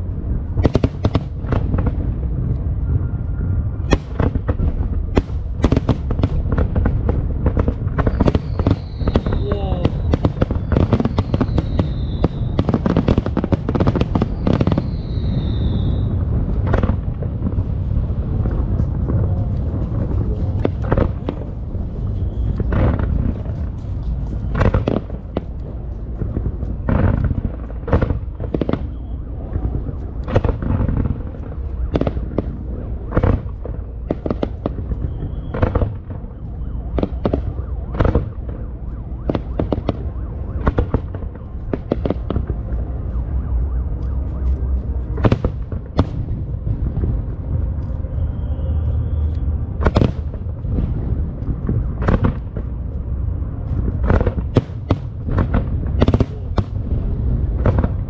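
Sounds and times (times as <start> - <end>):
fireworks bangs: 0.0 - 58.0
fireworks crackling: 0.0 - 58.0
low rumble: 0.0 - 58.0
falling whistle: 8.1 - 12.7, 14.3 - 16.2, 35.0 - 35.7, 48.1 - 49.4.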